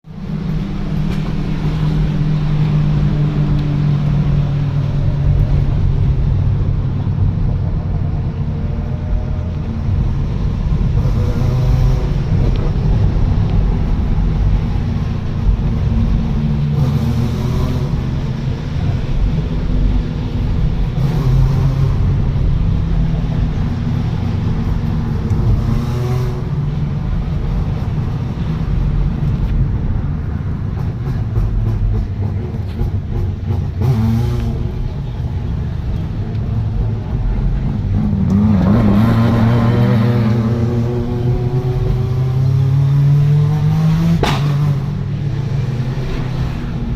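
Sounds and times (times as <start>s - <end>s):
rally car engines rumbling: 0.0s - 46.9s
engine revving: 10.0s - 28.0s, 30.7s - 35.1s, 35.8s - 46.9s
sharp engine pop: 44.2s - 44.8s.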